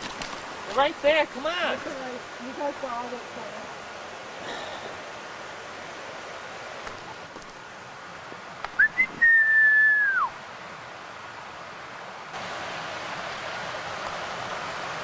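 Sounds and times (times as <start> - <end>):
person whistling: 8.8 - 10.3.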